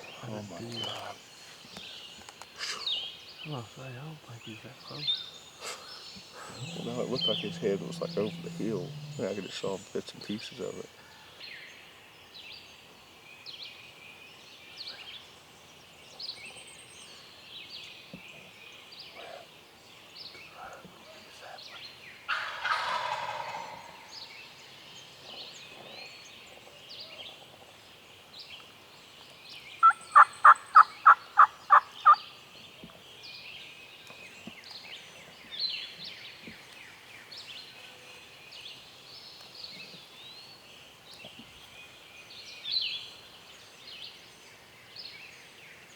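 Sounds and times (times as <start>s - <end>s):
songbirds chirping: 0.0s - 45.9s
turkey gobbling: 6.4s - 9.4s, 22.3s - 24.1s, 29.8s - 32.2s
turkey yelps: 22.3s - 24.1s.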